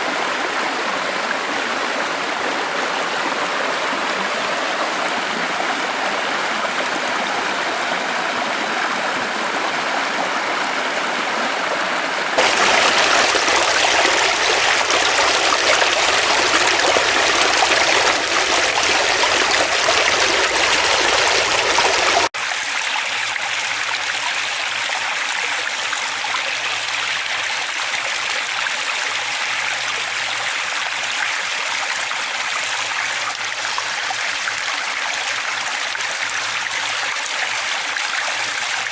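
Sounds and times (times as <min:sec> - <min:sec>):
stream water rushing: 0:12.4 - 0:22.3.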